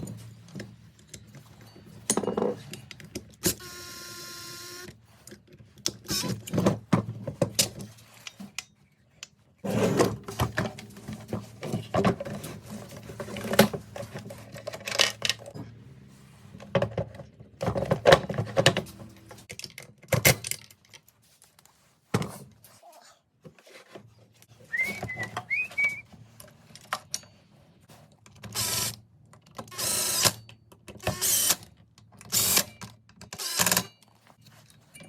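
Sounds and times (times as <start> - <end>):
hand tools and metal parts clinking: 0.0 - 3.6, 5.1 - 21.5, 24.7 - 27.8.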